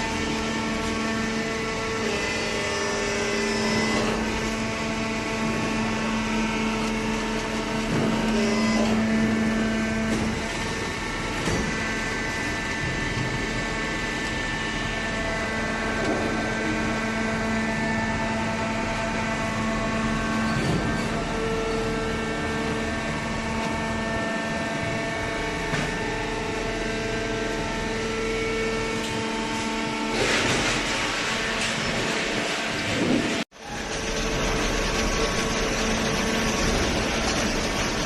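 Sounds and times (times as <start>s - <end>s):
baler machine humming and whining: 0.0s - 38.0s.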